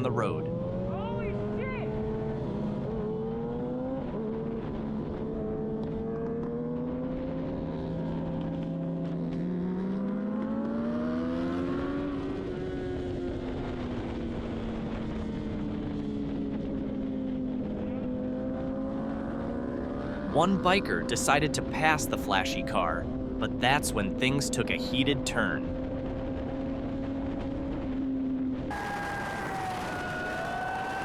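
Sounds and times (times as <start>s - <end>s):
engine running: 0.0s - 31.0s
rushing road noise: 0.0s - 31.0s.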